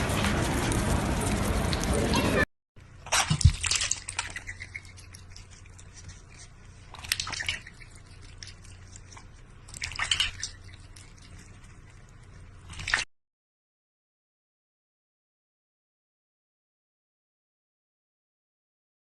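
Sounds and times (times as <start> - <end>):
steady low hum: 0.0 - 13.0
wet dripping: 3.1 - 13.1.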